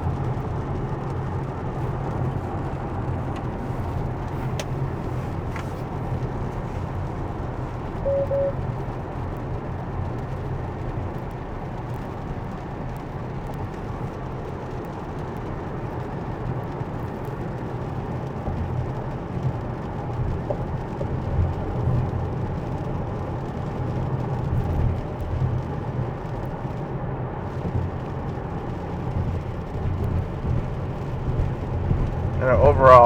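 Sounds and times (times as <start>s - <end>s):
wet tyre road noise: 0.0s - 33.0s
short quick beeps: 8.0s - 8.6s.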